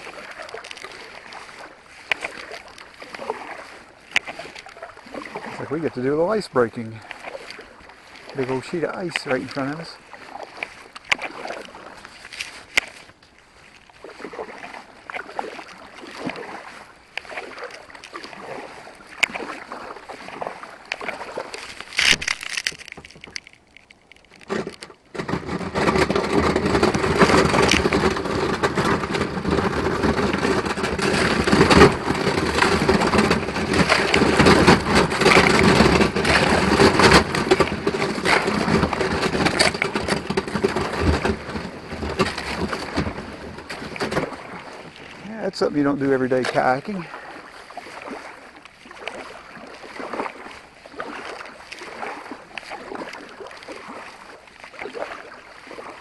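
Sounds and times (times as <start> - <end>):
ice cracking and crunching: 21.5 - 44.2.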